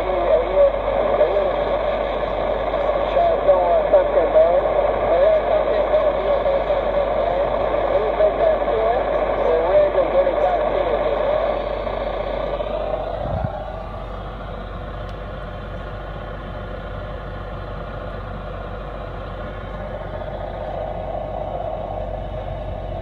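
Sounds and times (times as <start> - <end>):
radio static hiss: 0.0 - 14.7
low hum: 0.0 - 23.0.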